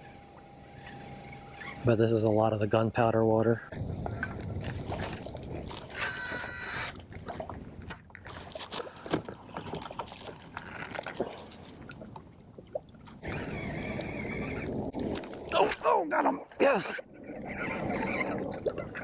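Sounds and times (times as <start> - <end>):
water sloshing and trickling: 0.0 - 19.0
steady whirring: 13.2 - 14.9.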